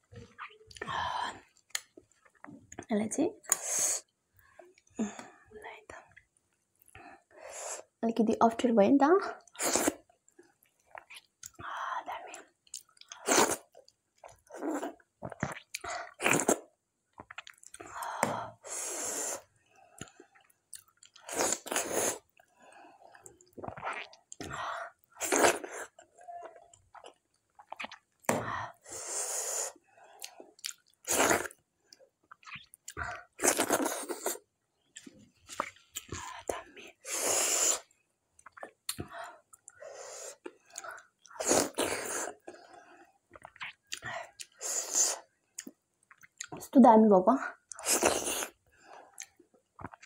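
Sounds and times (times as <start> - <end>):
person chewing food: 9.4 - 11.6, 12.3 - 18.1, 19.8 - 28.4, 30.1 - 31.6, 32.2 - 37.1, 37.7 - 46.6, 47.6 - 50.0.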